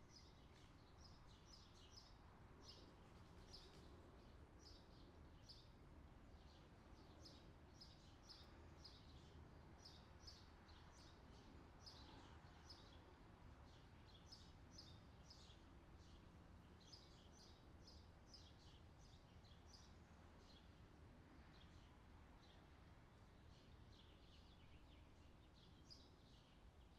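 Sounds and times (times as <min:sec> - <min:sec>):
small birds chirping: 0:06.4 - 0:26.9.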